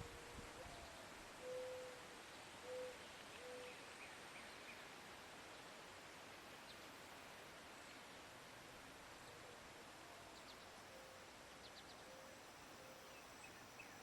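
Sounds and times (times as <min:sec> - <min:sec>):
faint steady hiss: 0:00.0 - 0:14.0
small birds chirping faintly: 0:00.0 - 0:14.0
low hooting bird calls: 0:01.4 - 0:02.0.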